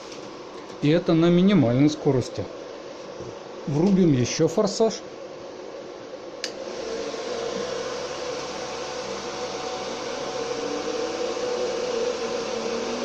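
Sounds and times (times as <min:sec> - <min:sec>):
rush of blown air with whine: 0:00.0 - 0:13.0
fan switch click: 0:06.4 - 0:06.6.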